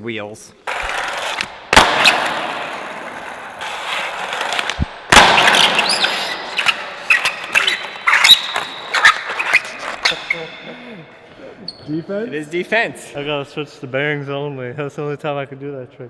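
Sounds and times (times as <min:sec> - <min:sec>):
skateboard smacking the ground: 0:00.7 - 0:10.1.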